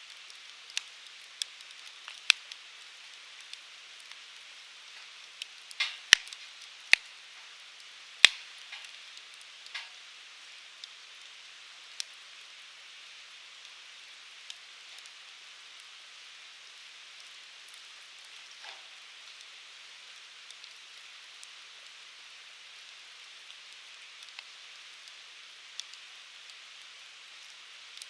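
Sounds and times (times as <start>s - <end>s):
firewood crackling pops: 0.7s - 10.1s, 17.2s - 20.7s
flames hissing: 12.7s - 28.0s.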